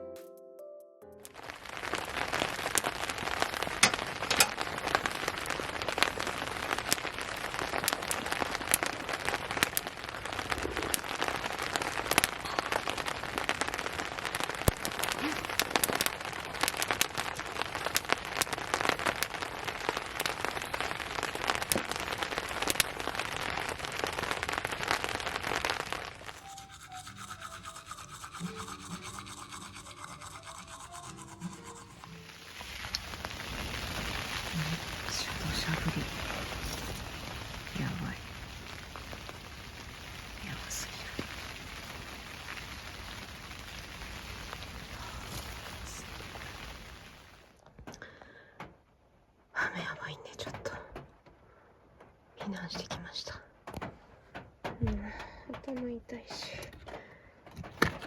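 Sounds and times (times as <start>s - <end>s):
heavy rain downpour: 1.4s - 26.4s, 32.1s - 47.6s.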